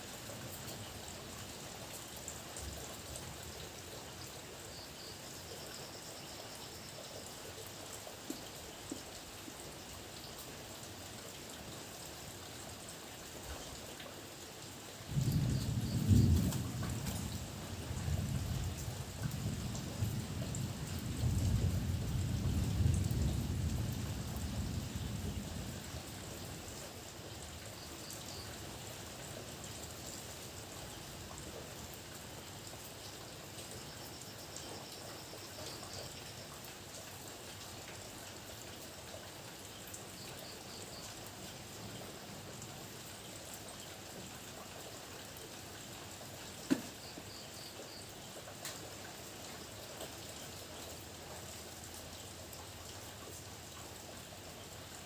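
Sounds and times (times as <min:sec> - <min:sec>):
heavy rain falling: 0:10.5 - 0:34.0
low thunder rumble: 0:15.1 - 0:26.3.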